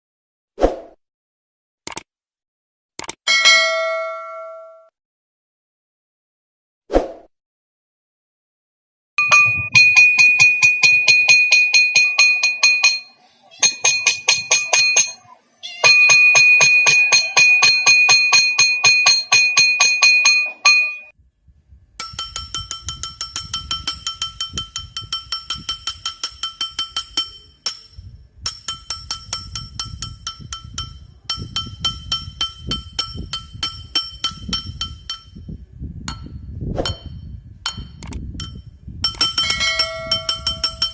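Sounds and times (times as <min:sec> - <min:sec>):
spoon striking porcelain bowl: 0:09.2 - 0:15.2, 0:22.0 - 0:35.4, 0:36.9 - 0:40.9.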